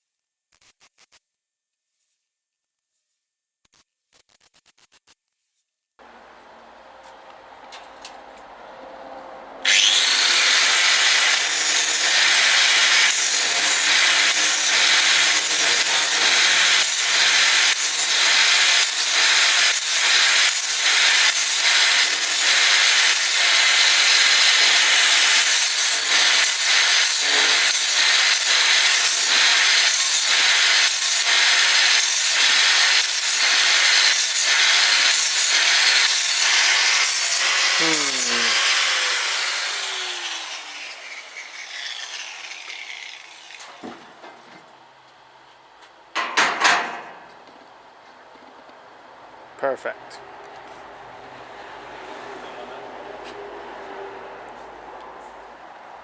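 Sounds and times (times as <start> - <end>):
sawing back and forth: 9.6 - 44.8.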